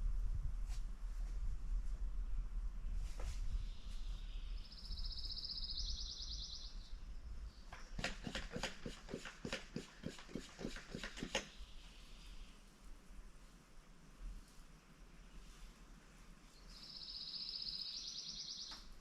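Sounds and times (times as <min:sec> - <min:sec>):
sharp ticks: 0:08.0 - 0:11.5
small bird high trill: 0:16.9 - 0:18.7.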